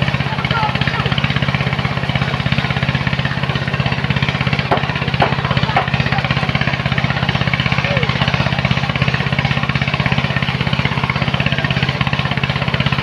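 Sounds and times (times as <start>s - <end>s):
machine engine running: 0.0s - 13.0s
sharp knocks: 4.6s - 6.0s.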